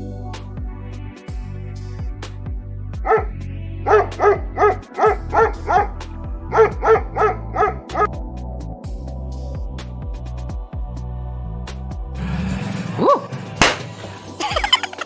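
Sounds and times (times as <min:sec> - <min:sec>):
dog barking: 0:03.0 - 0:08.1, 0:13.0 - 0:13.4.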